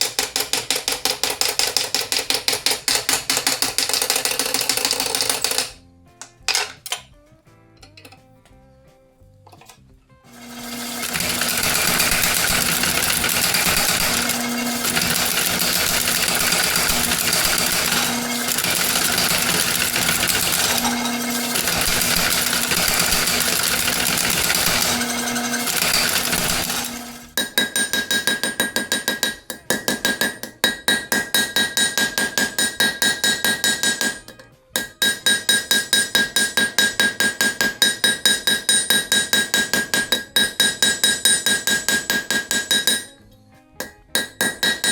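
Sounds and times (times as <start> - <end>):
machine humming: 10.3 - 27.4.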